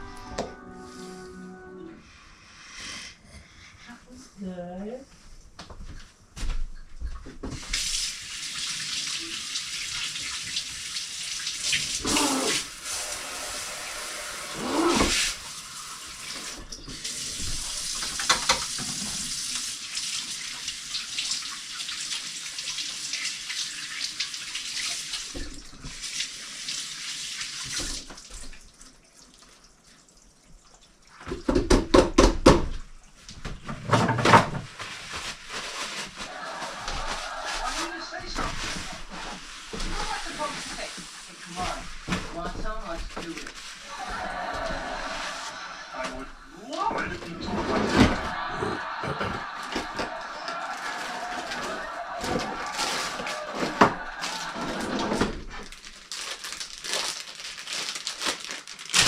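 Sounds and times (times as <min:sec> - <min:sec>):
water running: 0:07.2 - 0:31.6, 0:35.3 - 0:58.3.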